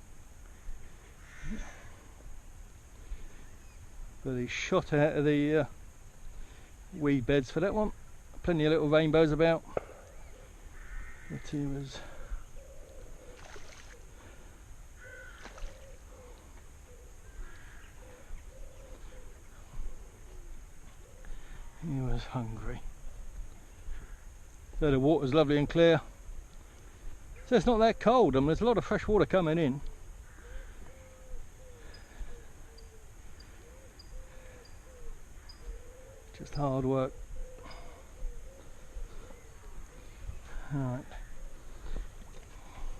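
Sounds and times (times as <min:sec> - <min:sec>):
birds calling: 0:00.0 - 0:42.9
crow-like caws: 0:00.5 - 0:02.2, 0:09.8 - 0:21.8, 0:23.8 - 0:24.4, 0:29.9 - 0:36.2, 0:37.2 - 0:42.9.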